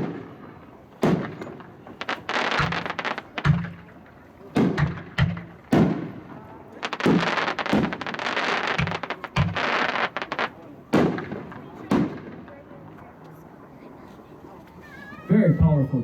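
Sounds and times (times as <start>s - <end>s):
firework crackling: 0.0s - 12.7s
firework shell breaks booming: 1.0s - 6.2s, 8.7s - 10.2s.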